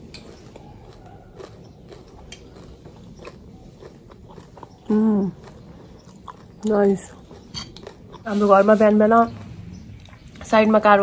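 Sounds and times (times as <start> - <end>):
person chewing crunchy food: 0.0 - 8.3.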